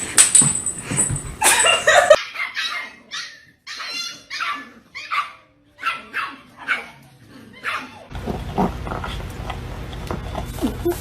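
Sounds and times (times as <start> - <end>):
dog barking: 2.2 - 7.0, 7.6 - 8.1.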